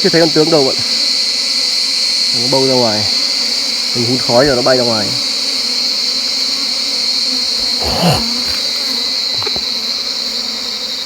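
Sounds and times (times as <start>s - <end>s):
honeybees buzzing: 0.0s - 11.0s
bee passing close by: 2.6s - 11.0s
high-pitched insect shrill: 7.6s - 9.6s.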